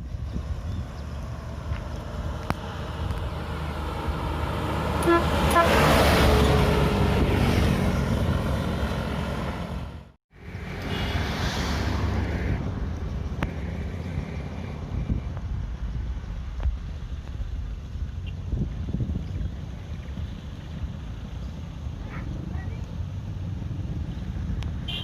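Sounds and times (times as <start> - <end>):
road traffic noise: 0.0 - 25.0
heavy vehicle passing: 0.4 - 16.1
vehicle horn short notes: 5.0 - 5.8.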